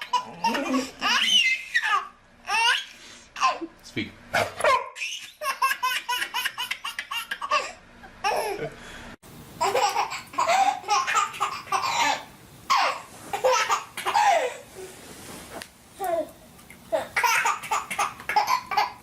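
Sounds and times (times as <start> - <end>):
young child laughing: 0.0 - 2.0.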